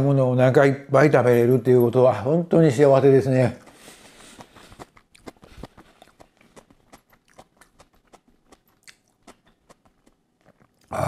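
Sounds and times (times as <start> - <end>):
person chewing food: 3.6 - 11.0.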